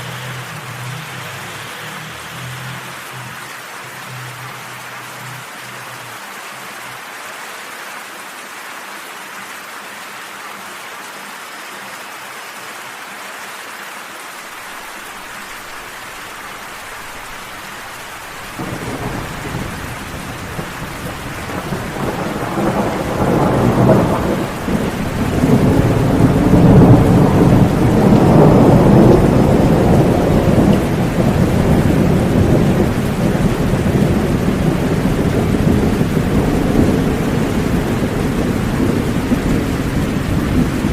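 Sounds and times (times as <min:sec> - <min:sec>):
steady rain falling: 0:00.0 - 0:40.9
low roll of thunder: 0:18.5 - 0:40.9.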